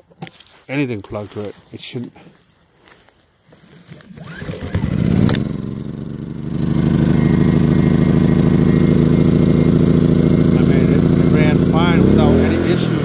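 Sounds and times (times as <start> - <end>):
generator engine starting: 3.9 - 13.0.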